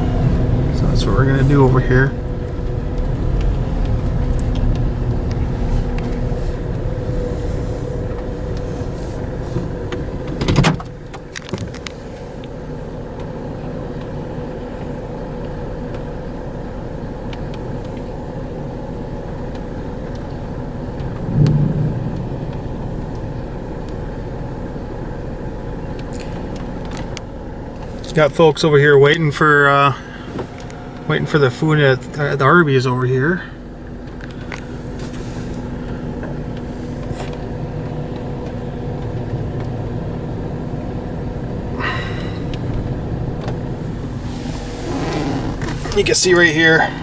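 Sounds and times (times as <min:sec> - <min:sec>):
car engine and road noise: 0:00.0 - 0:47.0.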